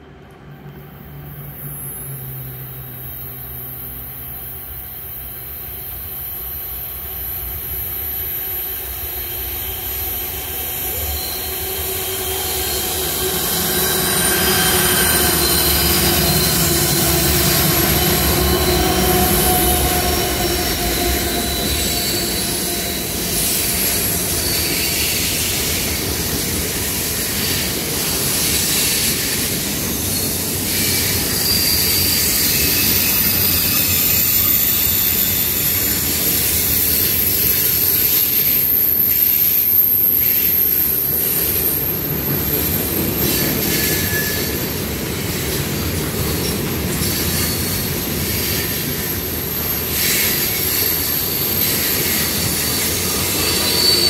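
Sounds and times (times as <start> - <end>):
freight cars rumbling on rails: 0.0 - 39.0
diesel locomotive engines: 0.0 - 54.0.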